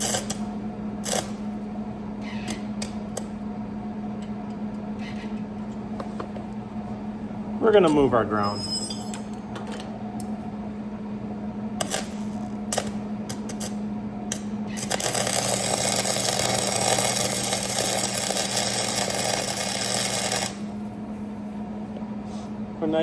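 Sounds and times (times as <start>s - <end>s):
welding arc crackling: 0.0s - 1.4s, 11.8s - 20.8s
steady low hum: 0.0s - 23.0s.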